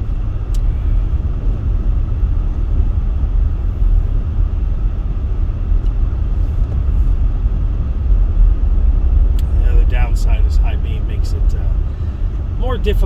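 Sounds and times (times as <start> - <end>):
vehicle engine and tyre noise: 0.0 - 13.0.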